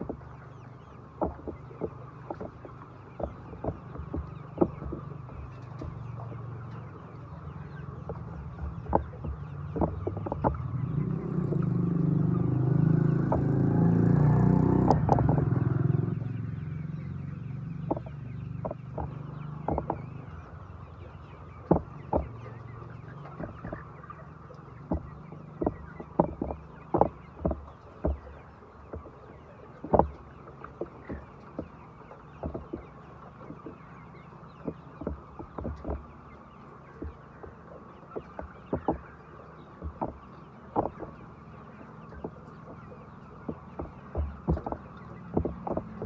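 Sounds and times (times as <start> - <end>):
chickens clucking: 0.0 - 46.0
steady low hum: 0.0 - 46.0
sharp taps: 1.2 - 6.0, 8.0 - 11.8, 12.5 - 13.7, 17.8 - 20.1, 21.7 - 22.4, 23.3 - 23.8, 24.8 - 29.2, 29.8 - 31.8, 32.4 - 33.9, 34.6 - 36.1, 37.0 - 39.1, 39.8 - 41.2, 42.1 - 46.0.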